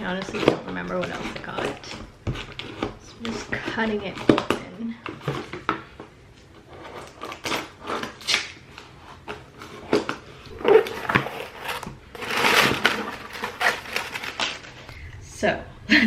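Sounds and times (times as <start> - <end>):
cardboard rustling or tearing: 6.6 - 14.9.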